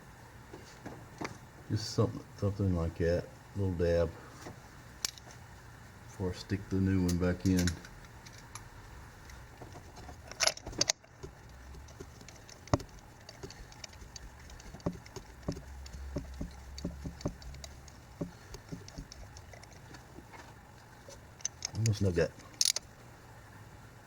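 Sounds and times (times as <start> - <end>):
small metal clicks: 7.1 - 20.1, 21.1 - 22.9
wrench knocks: 10.4 - 19.7.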